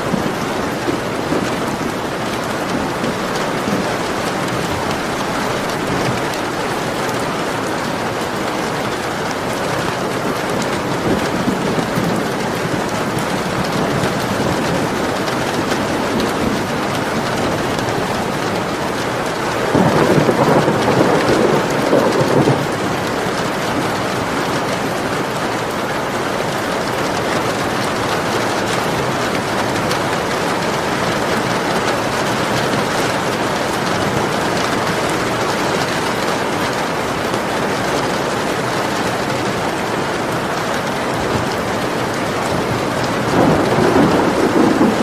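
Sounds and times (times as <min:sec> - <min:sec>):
thunder rolling: 0:00.0 - 0:07.9, 0:10.3 - 0:24.3, 0:41.4 - 0:45.0
heavy rain falling: 0:00.0 - 0:45.0.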